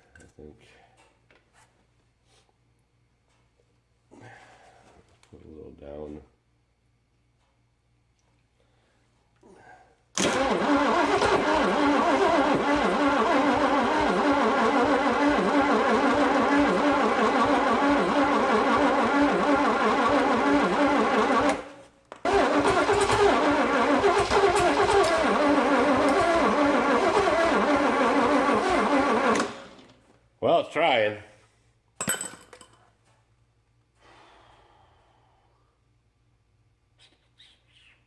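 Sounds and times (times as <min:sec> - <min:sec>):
car engine cranking: 0:10.2 - 0:30.0.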